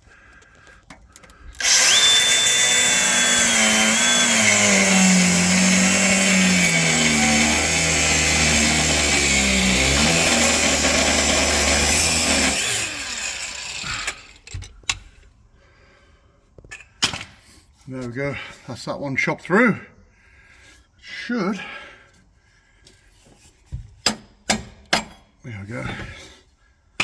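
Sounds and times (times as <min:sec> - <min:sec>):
angle grinder cutting metal: 0:01.6 - 0:14.5.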